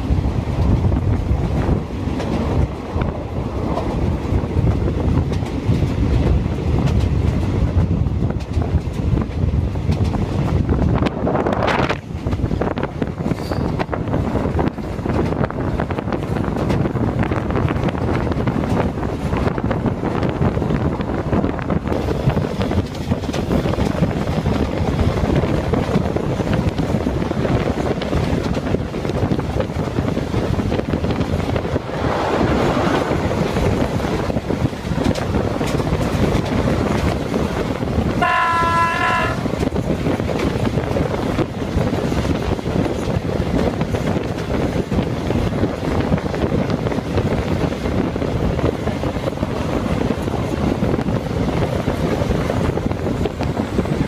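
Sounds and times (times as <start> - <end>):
train wheels on rails: 0.0 - 54.0
wind: 0.0 - 54.0
locomotive horn chord: 38.2 - 39.5.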